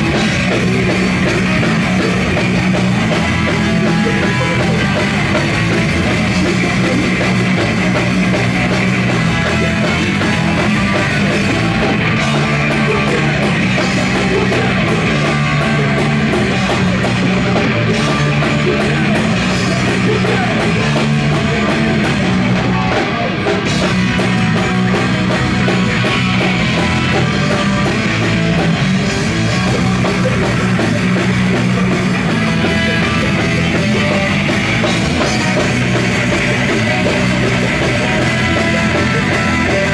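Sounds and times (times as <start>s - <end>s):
punk rock band playing: 0.0s - 39.9s.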